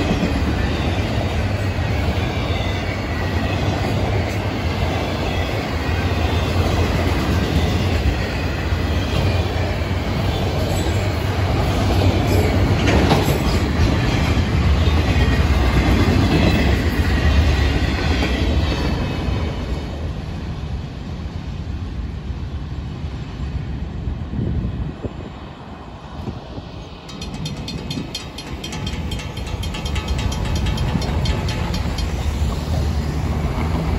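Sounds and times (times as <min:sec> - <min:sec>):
freight train wheels clattering: 0:00.0 - 0:19.1, 0:26.9 - 0:33.9.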